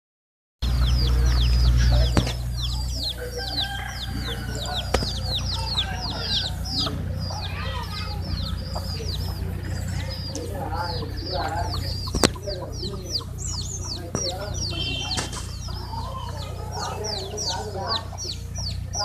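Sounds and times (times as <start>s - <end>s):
chickens clucking: 0.6s - 19.0s
chicks peeping: 0.6s - 19.0s
low rumble: 0.6s - 19.0s.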